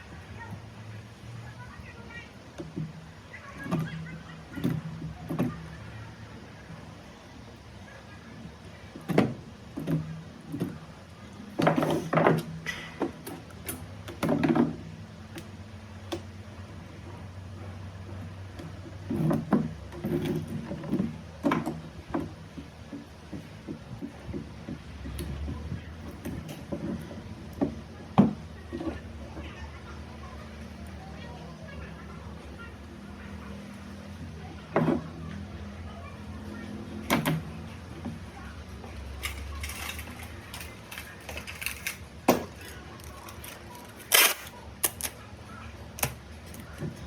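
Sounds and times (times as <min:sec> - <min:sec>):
hard objects knocking and clattering: 0:39.2 - 0:43.8.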